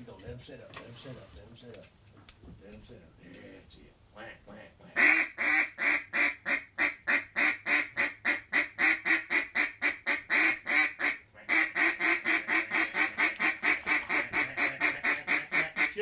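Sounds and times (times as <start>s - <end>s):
duck call rapid quacks: 5.0s - 16.0s.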